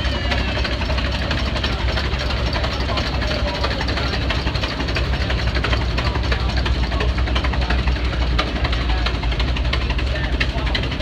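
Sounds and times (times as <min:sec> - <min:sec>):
engine low rumble: 0:00.0 - 0:11.0
fast irregular clatter of clicks: 0:00.5 - 0:11.0.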